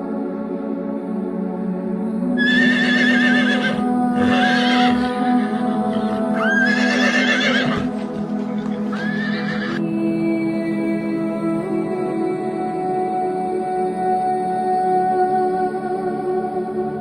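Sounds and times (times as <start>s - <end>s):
background music: 0.0s - 17.0s
horse whinnying: 2.4s - 8.0s, 8.6s - 9.8s.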